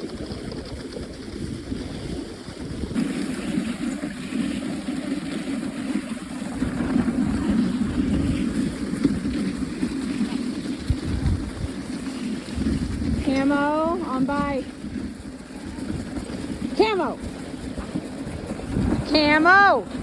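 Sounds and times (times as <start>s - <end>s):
sled runners on packed snow: 0.0s - 20.0s
wind buffeting microphone: 0.0s - 20.0s.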